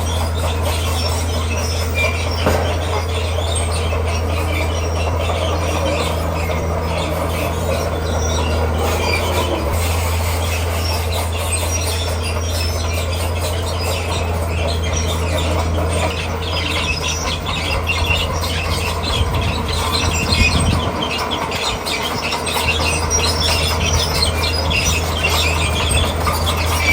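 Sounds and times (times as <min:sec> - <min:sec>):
bulldozer diesel engine running: 0:00.0 - 0:26.9
steel tracks squeaking and clattering: 0:00.0 - 0:26.9
loud knock: 0:02.4 - 0:02.9.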